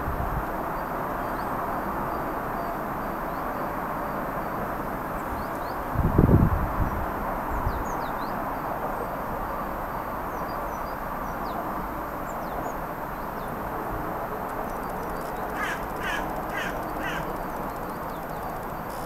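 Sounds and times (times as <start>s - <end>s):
small birds chirping: 14.6s - 19.0s
harsh falling bird calls: 14.8s - 19.0s.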